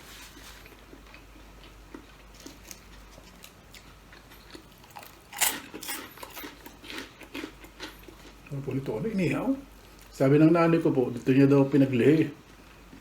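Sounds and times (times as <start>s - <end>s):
person chewing food: 0.0s - 8.6s
food crunch: 0.2s - 8.9s.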